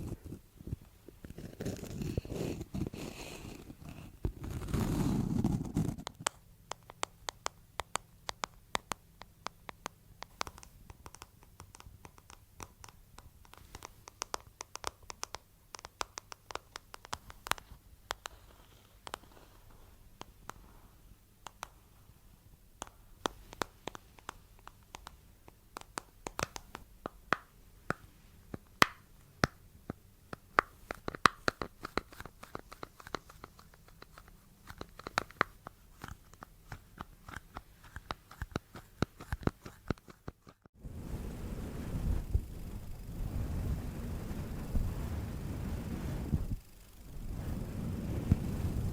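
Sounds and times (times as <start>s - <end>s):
close scratching and tapping: 0.0s - 22.2s, 22.8s - 40.8s.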